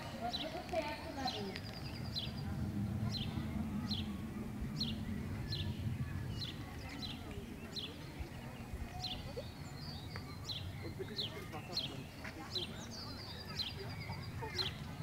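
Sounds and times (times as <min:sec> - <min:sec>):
low background rumble: 0:00.8 - 0:09.9.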